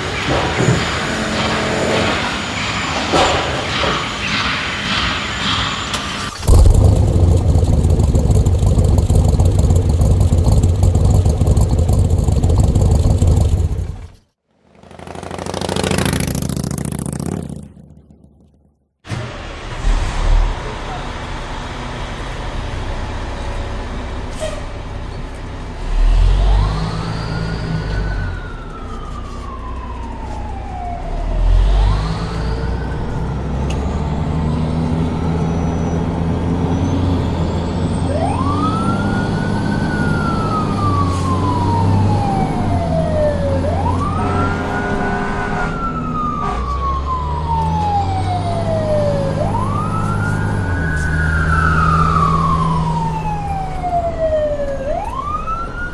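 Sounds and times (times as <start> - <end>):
low engine-like rumble: 6.2 - 14.2.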